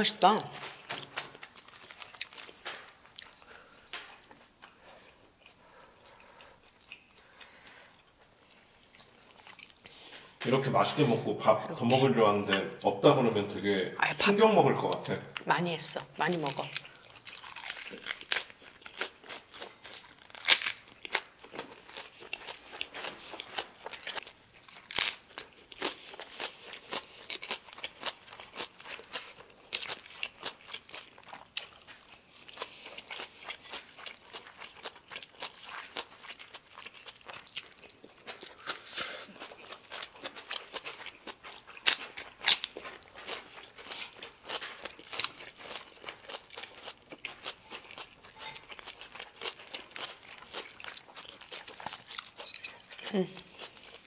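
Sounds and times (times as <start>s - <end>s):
crunching cabbage leaves: 0.3s - 3.6s, 16.2s - 54.0s.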